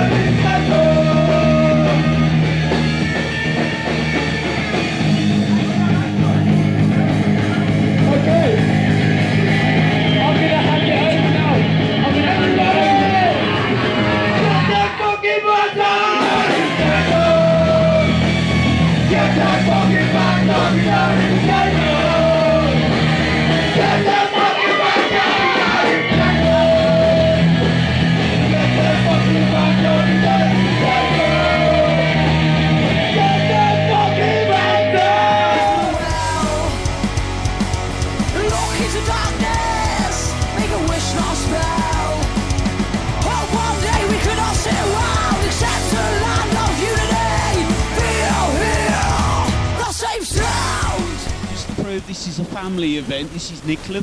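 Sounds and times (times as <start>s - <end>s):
person yelling singing: 0.0s - 2.4s, 14.4s - 22.9s, 23.6s - 27.6s, 28.2s - 36.8s, 38.3s - 42.4s, 43.2s - 51.3s
loud punk rock band: 0.0s - 54.0s.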